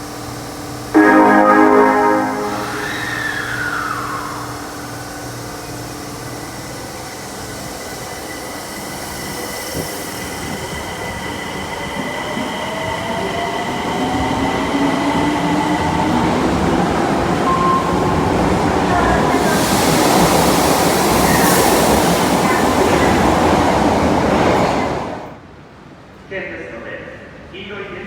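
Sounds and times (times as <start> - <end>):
subway train high tone: 0.9 - 26.3.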